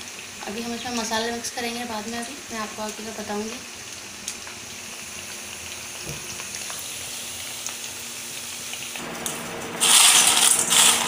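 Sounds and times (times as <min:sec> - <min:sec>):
food sizzling in hot oil: 0:00.0 - 0:11.0
fried snacks rattling in steel bowl: 0:09.8 - 0:11.0.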